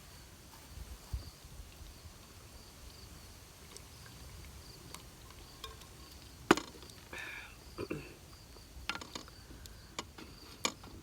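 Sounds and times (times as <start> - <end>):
faint insects chirping: 0.0 - 11.0.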